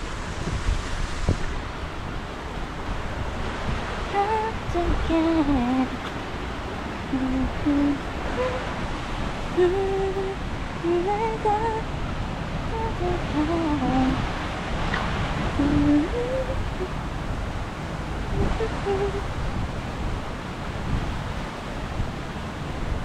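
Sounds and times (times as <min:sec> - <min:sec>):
wind rumble on microphone: 0:00.0 - 0:23.0
person humming a tune: 0:04.1 - 0:06.1, 0:07.1 - 0:08.8, 0:09.6 - 0:11.9, 0:12.7 - 0:14.2, 0:15.6 - 0:17.0, 0:18.3 - 0:19.3.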